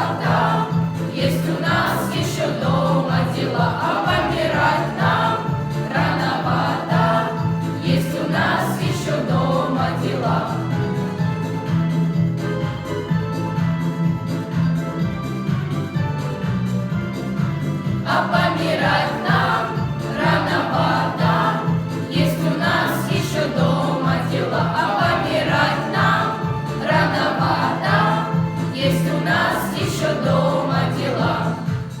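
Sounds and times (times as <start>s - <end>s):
children singing together: 0.0s - 10.8s, 18.0s - 31.9s.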